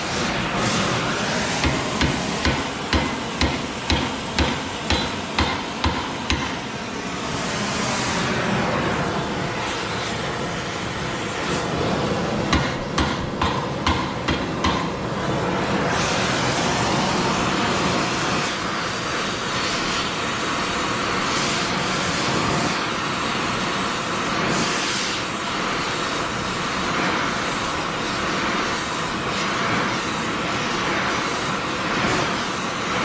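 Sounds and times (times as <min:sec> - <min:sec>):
gas torch flame hissing: 0:00.0 - 0:33.0
hammer striking steel: 0:01.6 - 0:06.7, 0:12.5 - 0:15.1.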